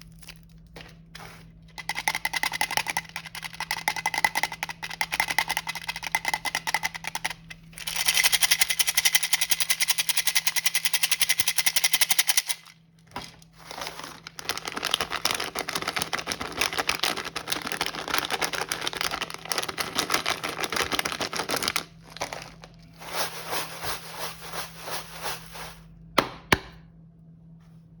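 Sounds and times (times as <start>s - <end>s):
plastic packaging crackling: 13.2s - 25.9s.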